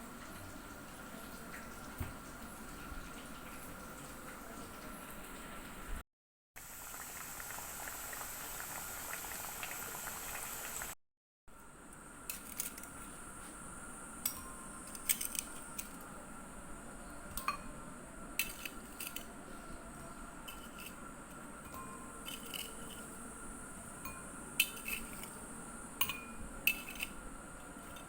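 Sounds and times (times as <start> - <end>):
food frying in hot oil: 0.0 - 6.0, 6.6 - 11.0, 11.6 - 28.0
utensil clinking against dishes: 14.2 - 16.1, 17.3 - 17.8, 18.4 - 28.0.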